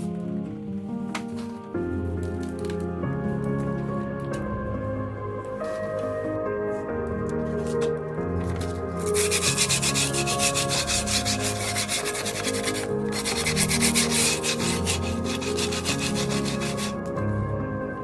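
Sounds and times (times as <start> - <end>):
background music: 0.0 - 18.0
hand sanding strokes: 9.0 - 17.0.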